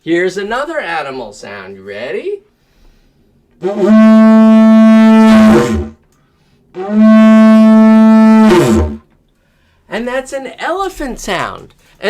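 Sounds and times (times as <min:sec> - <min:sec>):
didgeridoo trumpet-like blasts: 0:03.6 - 0:06.0, 0:06.7 - 0:09.0.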